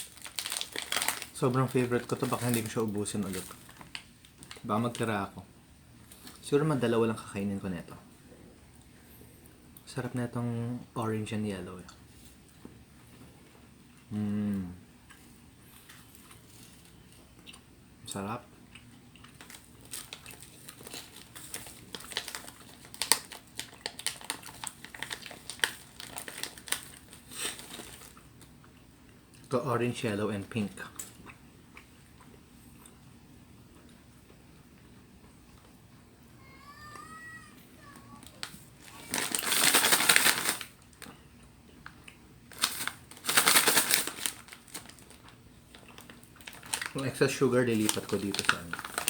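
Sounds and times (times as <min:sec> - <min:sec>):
plastic packet crinkling: 0:00.0 - 0:05.3, 0:19.3 - 0:28.2, 0:38.2 - 0:41.1, 0:42.5 - 0:49.0.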